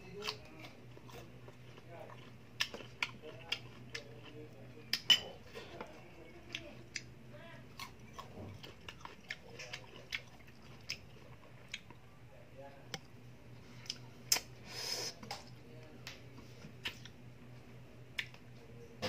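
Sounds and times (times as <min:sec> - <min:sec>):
crunching and chewing mango: 0:00.0 - 0:12.0.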